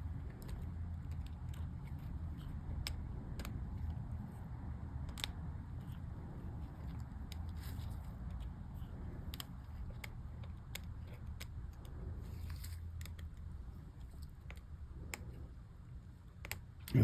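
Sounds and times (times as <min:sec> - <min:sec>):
low steady hum: 0:00.0 - 0:17.0
small keycap clicks and taps: 0:00.1 - 0:04.1, 0:05.0 - 0:05.9, 0:06.7 - 0:12.0.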